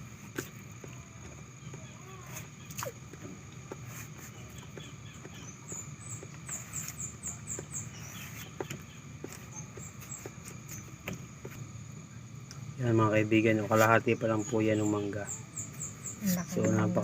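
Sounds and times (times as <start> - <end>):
small birds chirping: 0.1 - 17.0
person chewing mango: 2.3 - 5.4.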